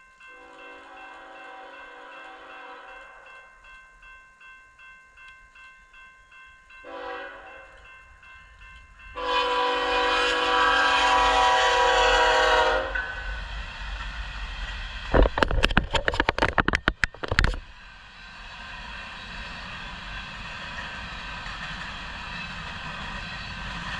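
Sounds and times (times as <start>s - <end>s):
crossing bell dinging: 0.0s - 10.1s
locomotive horn blasts: 0.3s - 3.2s, 6.8s - 7.8s, 9.2s - 13.2s
freight train rumbling: 6.3s - 23.9s.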